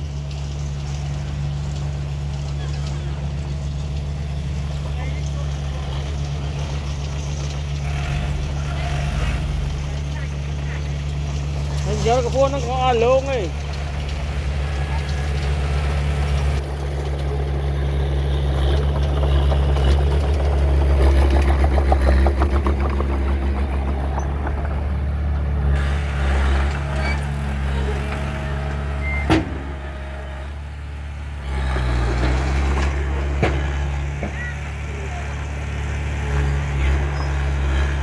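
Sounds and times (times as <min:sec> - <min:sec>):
diesel machine engine hum: 0:00.0 - 0:38.0.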